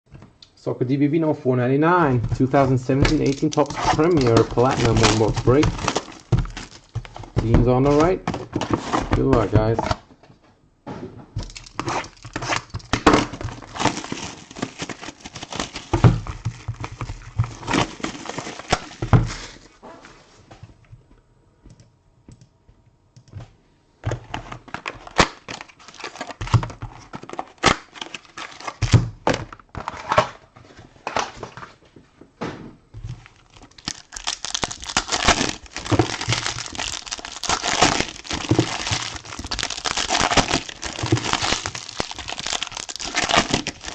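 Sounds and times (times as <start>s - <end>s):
plastic wrapping crinkling: 2.1s - 9.8s, 11.4s - 19.8s, 24.6s - 29.0s, 33.0s - 43.9s.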